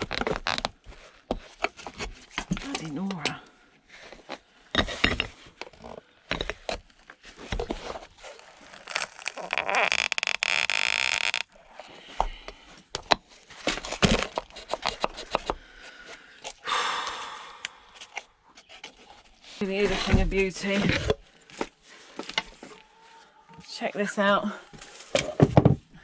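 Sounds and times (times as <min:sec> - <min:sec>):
wood and nail creaking apart: 0:07.8 - 0:11.6, 0:13.8 - 0:15.5.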